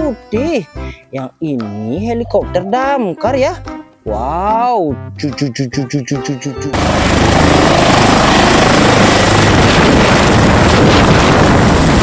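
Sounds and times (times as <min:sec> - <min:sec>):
helicopter rotor and engine: 0:06.7 - 0:12.0.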